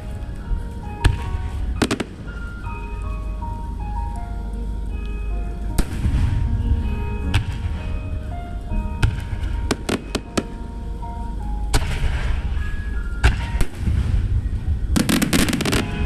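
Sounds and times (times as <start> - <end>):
crackling firework bursts: 0.0 - 3.3, 5.8 - 10.8, 11.5 - 16.0
low rumble: 0.0 - 16.0
music melody: 0.0 - 16.0
firework shells bursting: 9.0 - 10.6, 15.0 - 16.0.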